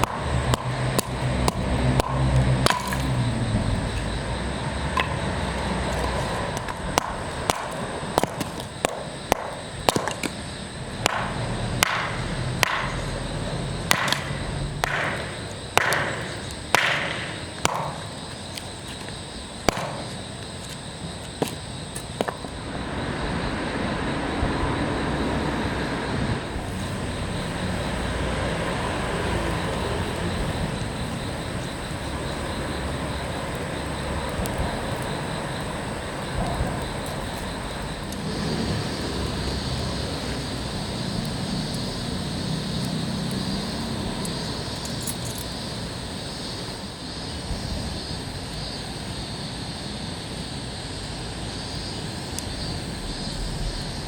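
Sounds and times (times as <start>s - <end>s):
steady rushing noise: 22.4s - 44.7s.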